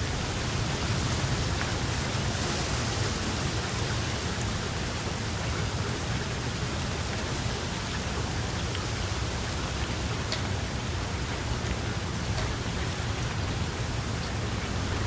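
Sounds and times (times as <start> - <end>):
raindrop ticks: 0.0 - 2.4, 9.8 - 15.0
steady rain falling: 0.0 - 15.0.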